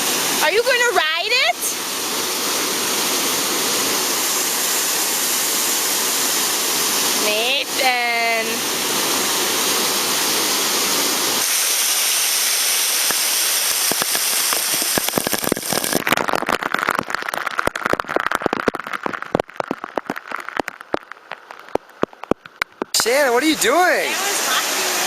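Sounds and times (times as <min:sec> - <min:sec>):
rush of falling water: 0:00.0 - 0:25.0
crackle of pops and drips: 0:12.8 - 0:23.2.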